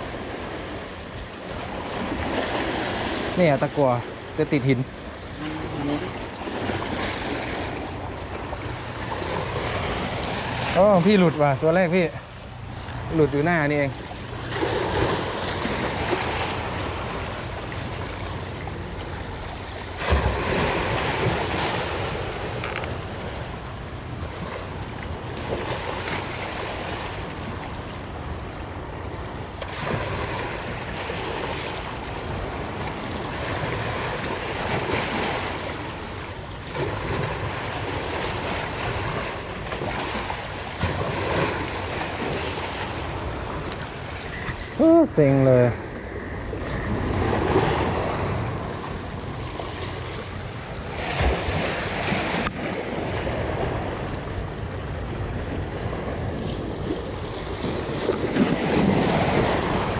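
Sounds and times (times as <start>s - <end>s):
sea waves washing ashore: 0.0s - 59.9s
wind buffeting microphone: 40.8s - 59.9s.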